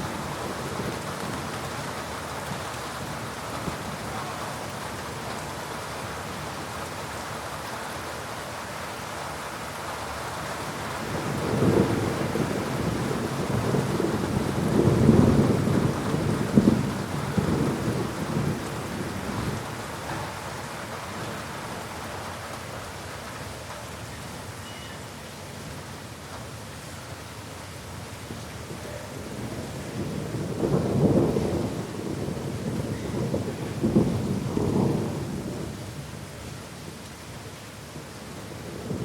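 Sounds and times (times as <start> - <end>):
steady rain falling: 0.0 - 39.0
thunder rumbling: 11.0 - 21.5, 29.2 - 36.0.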